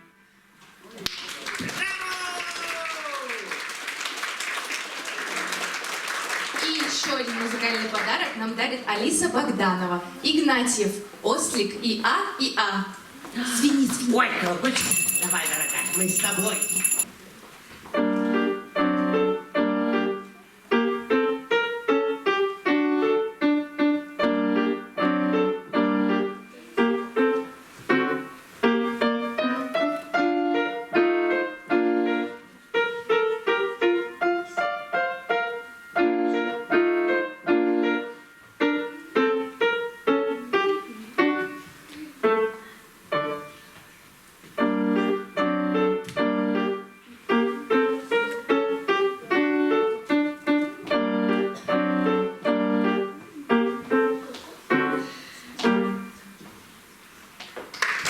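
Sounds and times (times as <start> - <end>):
solo piano piece: 17.9 - 56.4.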